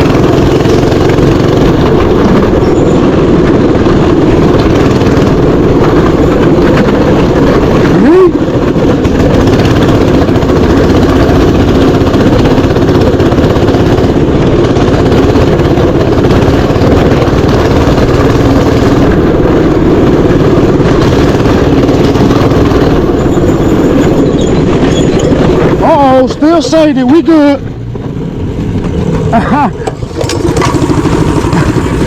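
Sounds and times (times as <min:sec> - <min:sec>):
mini bike engine running: 0:00.0 - 0:32.0.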